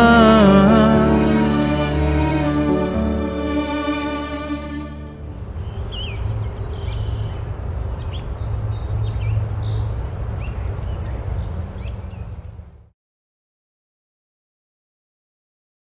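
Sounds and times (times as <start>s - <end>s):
small birds chirping: 5.6s - 12.6s.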